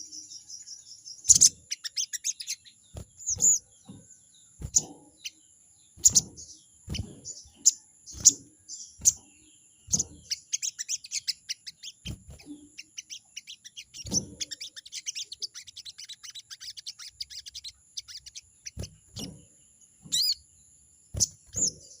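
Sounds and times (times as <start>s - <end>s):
sunbird chattering calls: 0.0s - 3.6s, 6.0s - 19.5s, 20.1s - 20.4s
dull thumps: 2.9s - 5.1s, 6.0s - 8.4s.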